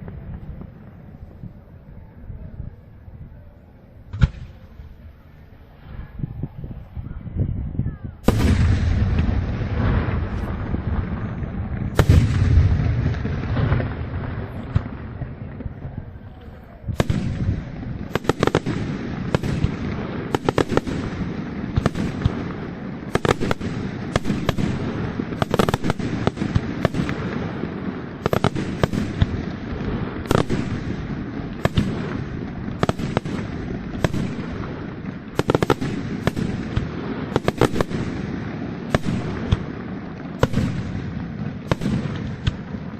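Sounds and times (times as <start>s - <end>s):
firework crackling: 0.0s - 2.2s, 8.1s - 42.9s
firework shell booms: 8.2s - 15.9s, 16.9s - 42.7s
rapid firework bangs: 8.2s - 42.9s.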